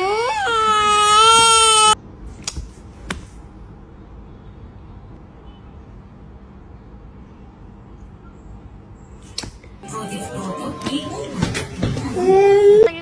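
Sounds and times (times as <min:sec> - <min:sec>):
loud wailing cry: 0:00.0 - 0:02.0.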